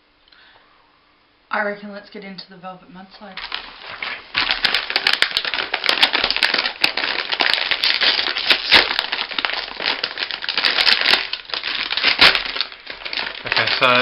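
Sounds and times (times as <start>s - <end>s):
packaging crinkling and clicking: 3.4s - 14.0s.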